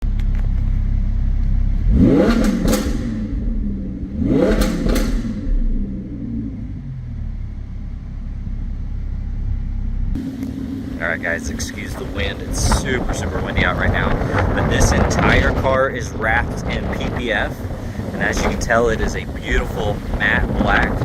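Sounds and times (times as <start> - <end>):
car engine idling and revving: 0.0 - 21.0
wind rumble on microphone: 10.5 - 21.0.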